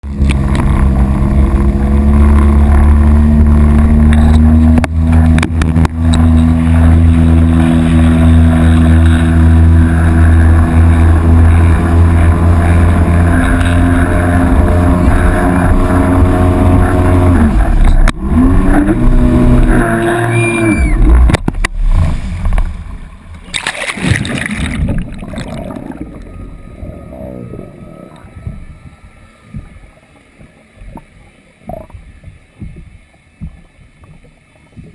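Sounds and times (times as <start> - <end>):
jet ski engine running: 0.0 - 34.9
water gurgling: 0.0 - 34.9
water splashing: 0.0 - 34.9
rising and falling tones: 5.7 - 21.4, 24.0 - 30.9.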